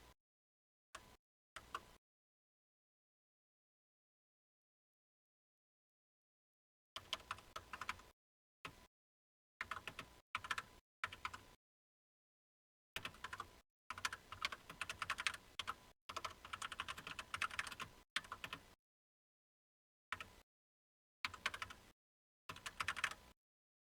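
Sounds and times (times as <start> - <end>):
computer keyboard typing: 7.0 - 8.1, 9.6 - 11.5, 13.0 - 18.7, 21.3 - 21.9, 22.5 - 23.2.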